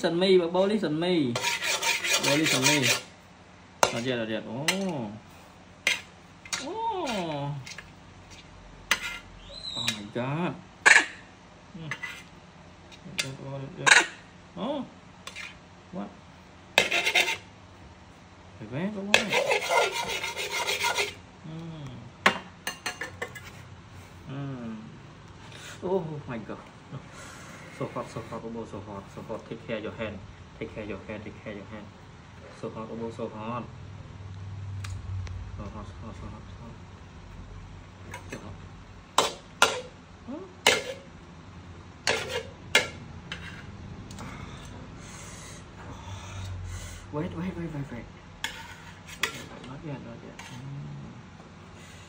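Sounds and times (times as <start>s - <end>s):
utensil scraping in a pan: 1.3s - 3.2s, 3.8s - 10.1s, 10.8s - 11.2s, 11.8s - 14.2s, 15.2s - 15.6s, 16.8s - 17.5s, 19.0s - 21.2s, 22.7s - 24.2s, 25.4s - 25.9s, 27.1s - 29.6s, 38.0s - 38.5s, 39.1s - 39.9s, 40.6s - 41.1s, 42.0s - 43.8s, 46.4s - 50.7s.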